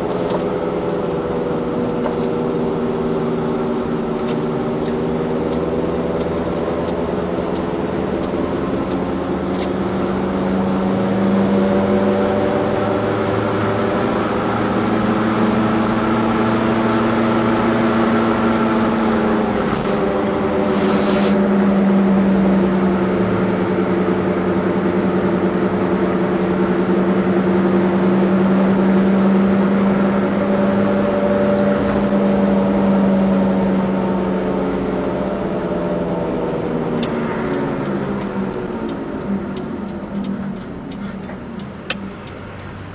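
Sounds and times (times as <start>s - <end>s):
car engine accelerating: 0.0s - 42.9s
short hiss: 20.6s - 21.4s.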